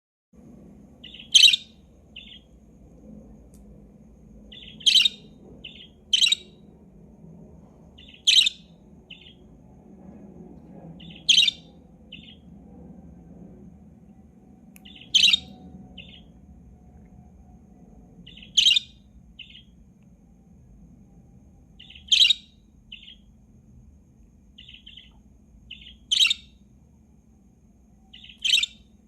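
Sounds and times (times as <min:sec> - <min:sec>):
budgerigar calls: 0:01.0 - 0:02.4, 0:04.5 - 0:06.5, 0:08.0 - 0:09.4, 0:11.0 - 0:12.4, 0:14.8 - 0:16.3, 0:18.3 - 0:19.7, 0:21.8 - 0:23.2, 0:24.6 - 0:25.1, 0:25.7 - 0:26.5, 0:28.2 - 0:28.8.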